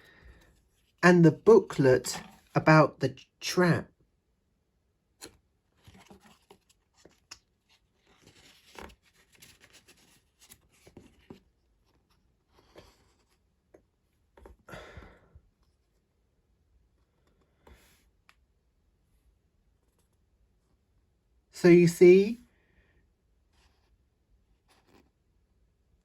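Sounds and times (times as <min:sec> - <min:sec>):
paper rustling: 0:05.8 - 0:12.1.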